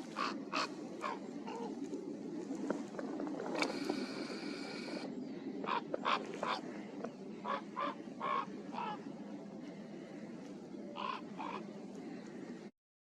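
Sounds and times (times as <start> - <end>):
crow calling: 0.0 - 2.0, 3.6 - 10.2, 10.9 - 12.6.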